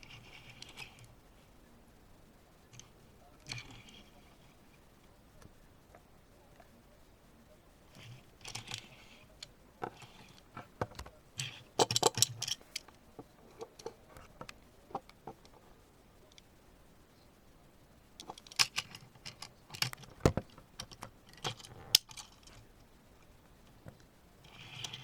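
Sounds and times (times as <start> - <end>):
clicks and taps handling toy car: 8.0 - 15.7, 18.2 - 25.0.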